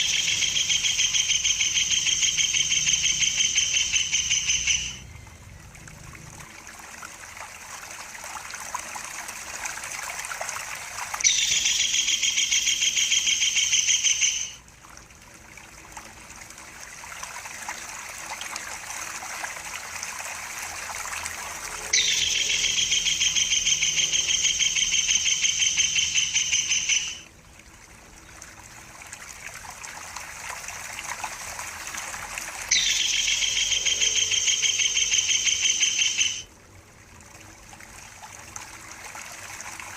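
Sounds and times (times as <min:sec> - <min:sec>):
kingfisher chattering call: 0:00.0 - 0:05.0, 0:11.2 - 0:14.6, 0:21.8 - 0:27.2, 0:32.7 - 0:36.5
trickling water: 0:00.0 - 0:39.9.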